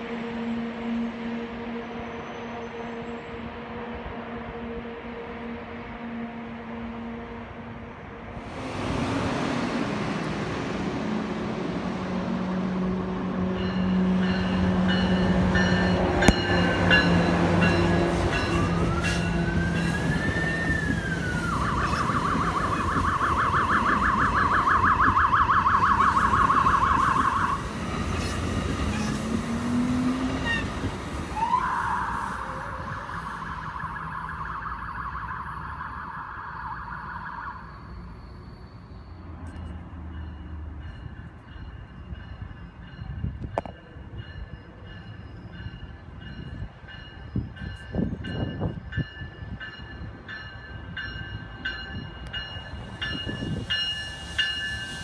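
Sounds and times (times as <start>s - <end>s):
train passing close by: 0.0s - 55.0s
emergency vehicle siren: 15.6s - 27.8s, 28.9s - 39.6s.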